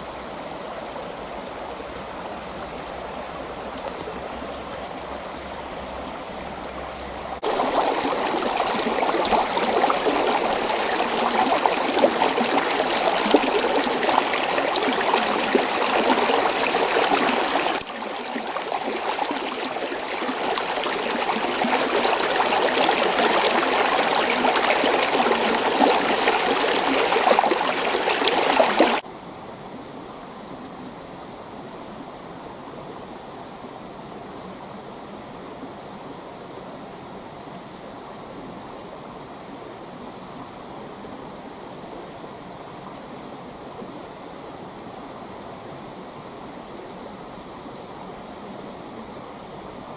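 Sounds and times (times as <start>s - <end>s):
creek water over rocks: 0.0s - 29.0s.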